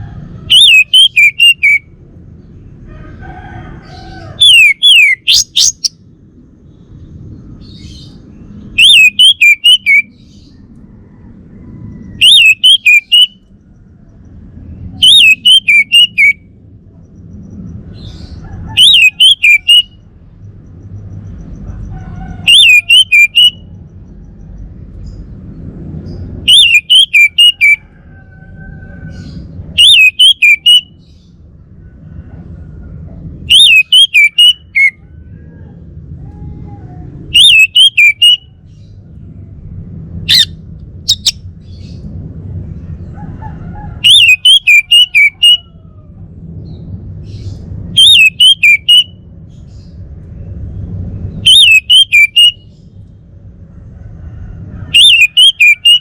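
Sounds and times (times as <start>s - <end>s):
thrush singing whistled phrases: 0.5s - 1.9s, 4.4s - 6.0s, 8.8s - 10.2s, 12.2s - 13.4s, 15.0s - 16.4s, 18.8s - 20.0s, 22.5s - 23.7s, 26.5s - 27.8s, 29.8s - 31.0s, 33.5s - 35.0s, 37.3s - 38.5s, 44.0s - 45.6s, 48.0s - 49.2s, 51.4s - 52.7s, 55.0s - 56.0s
low rumble: 38.4s - 44.2s, 45.6s - 48.3s, 49.1s - 51.9s.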